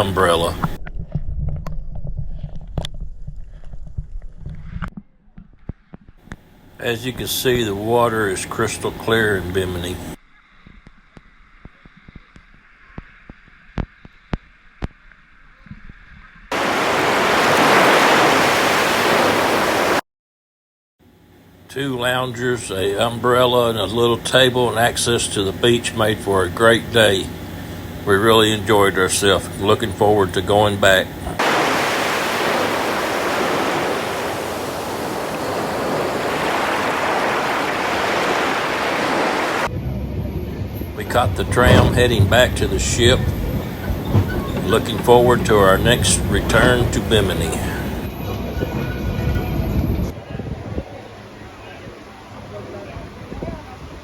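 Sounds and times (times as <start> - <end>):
rush of water: 0.0 - 0.8, 16.5 - 20.0, 28.7 - 39.7, 41.0 - 48.5
sea waves washing onto beach: 0.0 - 0.8, 16.5 - 20.0, 28.7 - 39.7, 41.0 - 48.4
surf hiss: 0.0 - 0.8, 6.8 - 10.2, 16.5 - 20.0, 21.8 - 39.7, 41.0 - 48.5.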